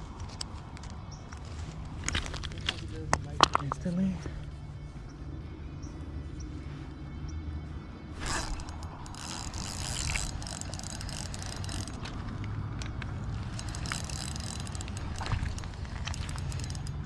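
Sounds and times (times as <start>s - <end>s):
light clicks and ticks: 8.2s - 17.0s.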